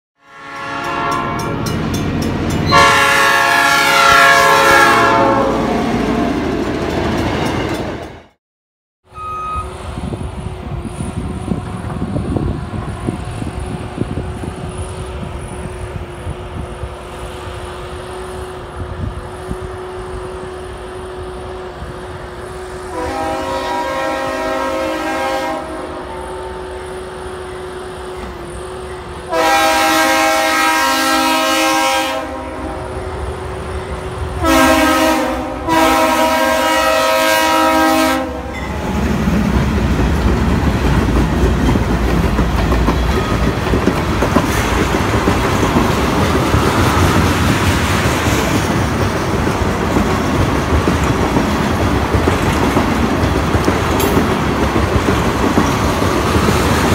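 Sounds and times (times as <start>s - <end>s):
locomotive horn blasts: 0.2s - 1.8s, 2.6s - 5.8s, 9.0s - 9.8s, 19.4s - 38.7s.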